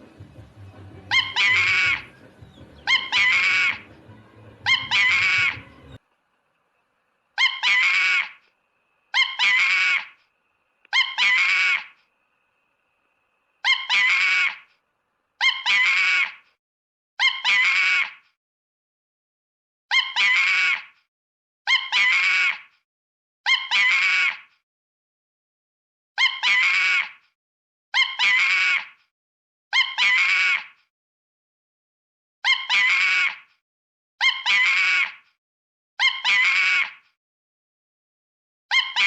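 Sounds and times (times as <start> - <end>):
monkey screeching call: 1.1 - 3.9, 4.6 - 6.0, 7.4 - 8.4, 9.1 - 10.2, 10.9 - 12.0, 13.6 - 14.7, 15.4 - 16.4, 17.2 - 18.2, 19.9 - 20.9, 21.7 - 22.7, 23.5 - 24.5, 26.2 - 27.2, 28.0 - 29.0, 29.7 - 30.8, 32.4 - 33.5, 34.2 - 35.2, 36.0 - 37.0, 38.7 - 39.0.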